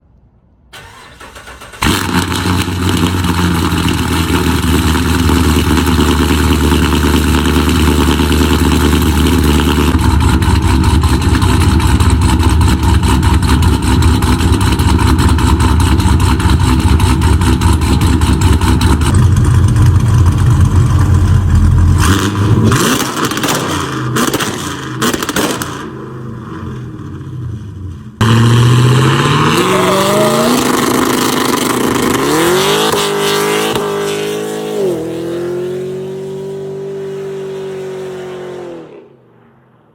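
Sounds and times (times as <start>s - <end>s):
engine revving: 0.8s - 27.2s, 28.2s - 39.1s
loud engine with choppy idle: 1.8s - 22.0s.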